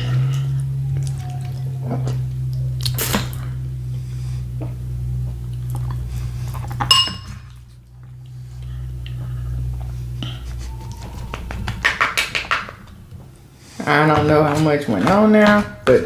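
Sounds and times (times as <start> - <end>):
spoon clinking against dish: 6.9 - 7.3.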